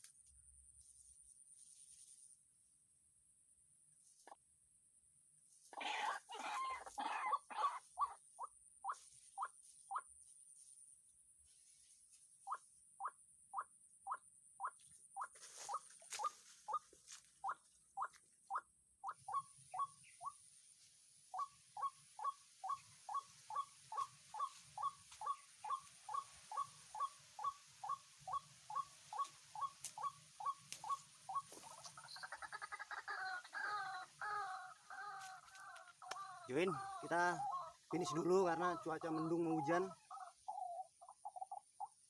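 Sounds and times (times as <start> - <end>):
bird clucking call: 5.7 - 8.2, 21.8 - 42.0
waterhen calling: 21.4 - 41.6.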